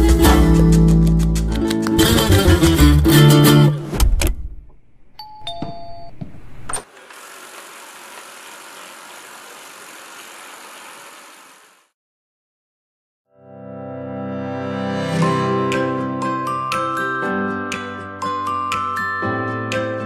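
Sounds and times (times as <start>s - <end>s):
background music: 0.0s - 4.0s, 13.4s - 20.0s.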